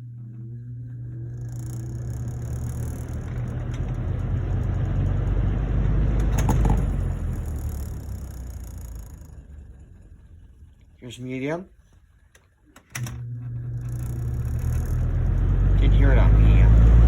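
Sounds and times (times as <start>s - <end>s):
box fan motor whine: 0.0s - 17.0s
brief knocks: 6.3s - 7.0s.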